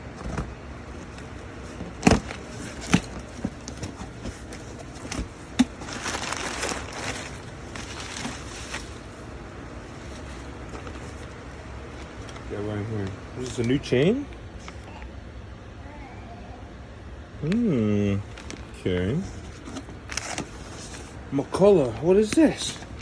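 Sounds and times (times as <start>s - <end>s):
packing material rustling: 0.0s - 13.8s, 18.2s - 23.0s.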